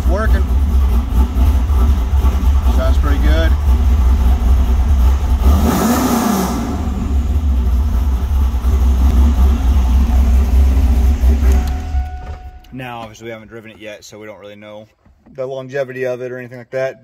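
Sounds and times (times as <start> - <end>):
car engine idling: 0.0 - 13.4.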